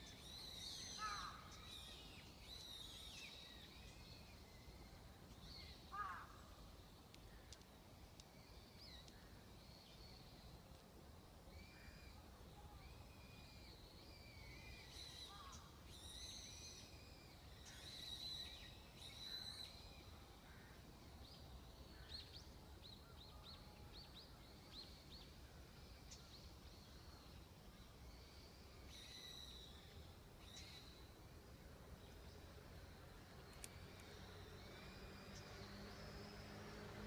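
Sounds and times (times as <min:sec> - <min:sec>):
wild birds calling: 0:05.9 - 0:06.4.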